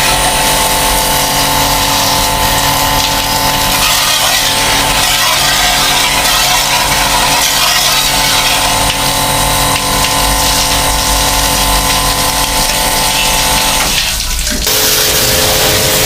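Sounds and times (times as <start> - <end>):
pressure washer pump humming: 0.0 - 16.0
water jet hissing: 0.0 - 16.0.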